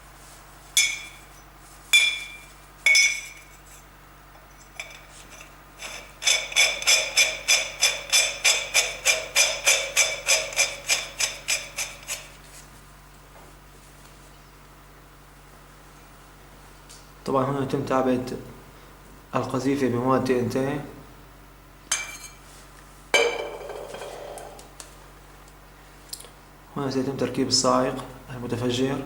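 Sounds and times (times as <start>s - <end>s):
hammer striking ringing metal: 23.2s - 24.6s.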